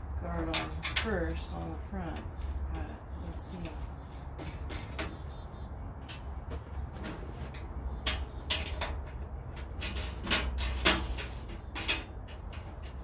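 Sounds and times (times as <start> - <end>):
metal parts knocking and clacking: 8.0 - 13.0.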